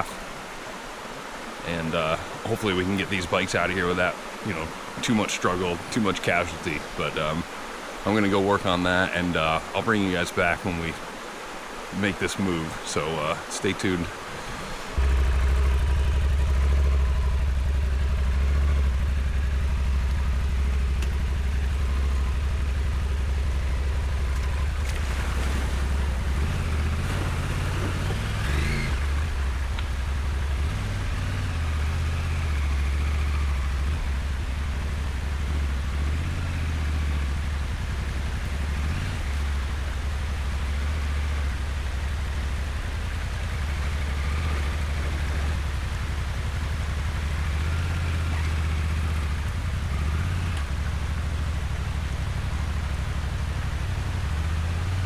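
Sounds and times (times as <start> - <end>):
motorcycle engine revving: 14.9 - 55.0.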